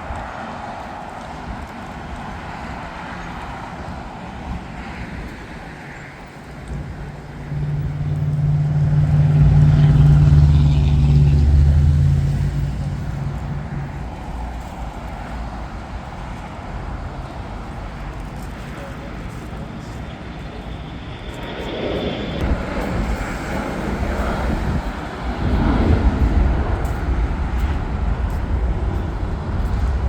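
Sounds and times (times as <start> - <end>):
steady background roar: 0.0 - 30.0
passing vehicle engine hum: 6.8 - 30.0.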